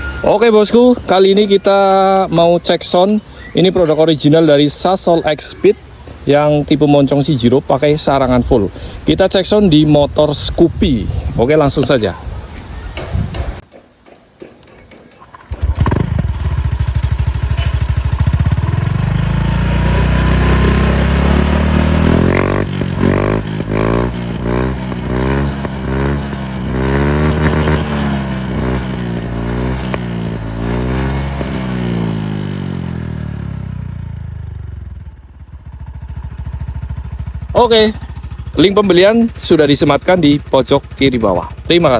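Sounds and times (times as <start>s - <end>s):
scooter engine idling and revving: 15.2s - 41.9s.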